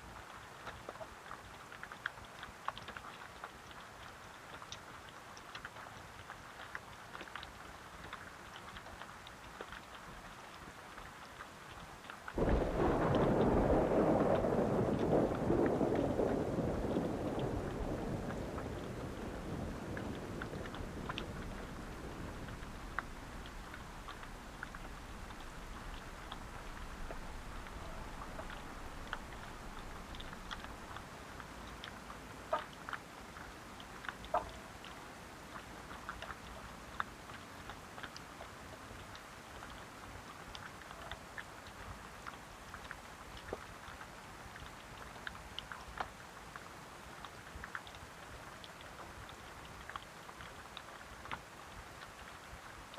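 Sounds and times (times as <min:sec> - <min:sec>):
raindrops ticking: 0:00.0 - 0:52.9
steady rain: 0:00.0 - 0:52.9
low rumble of thunder: 0:12.4 - 0:31.2.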